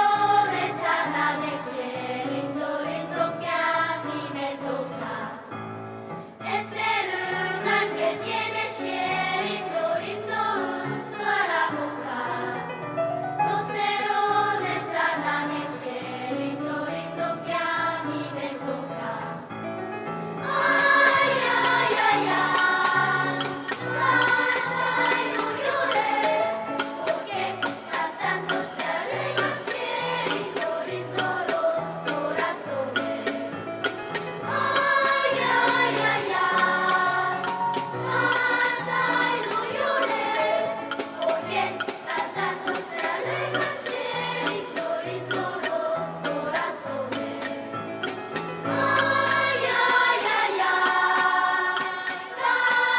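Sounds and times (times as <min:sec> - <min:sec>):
children's choir singing: 0:00.0 - 0:05.8, 0:06.4 - 0:52.9
jingling percussion beat: 0:20.5 - 0:52.9.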